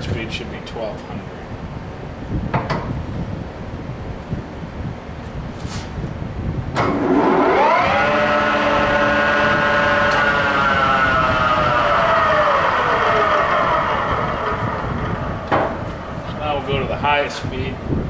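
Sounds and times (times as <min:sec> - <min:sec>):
lathe gears whining: 0:06.8 - 0:17.1.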